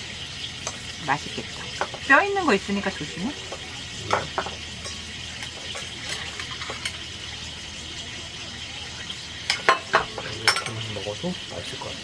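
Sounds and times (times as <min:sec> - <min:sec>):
appliance humming: 0:00.0 - 0:12.0
tableware clicking: 0:03.5 - 0:07.0, 0:09.5 - 0:10.8.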